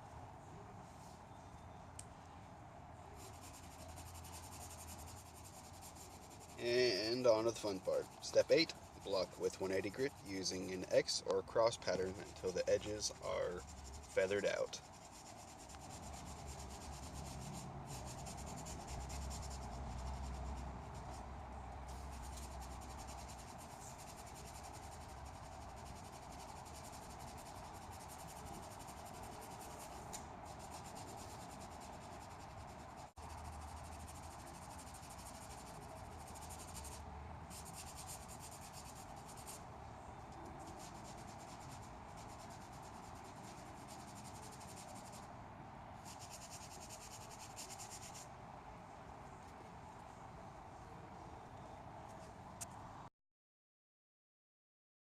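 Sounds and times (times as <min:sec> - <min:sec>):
sandpaper rubbing on filler: 0:03.2 - 0:21.2, 0:21.9 - 0:39.6, 0:40.6 - 0:45.2, 0:46.0 - 0:48.2.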